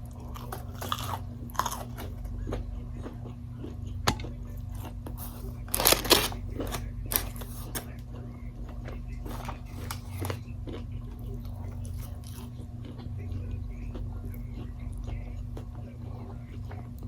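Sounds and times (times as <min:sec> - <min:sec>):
person chewing and biting food: 0:00.0 - 0:17.0
steady low hum: 0:00.0 - 0:17.0.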